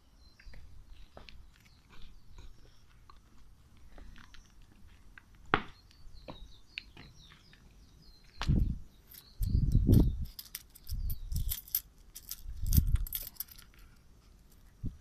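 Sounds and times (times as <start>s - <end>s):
birds chirping faintly: 0.0s - 15.0s
small objects clicking and rustling: 9.1s - 14.8s.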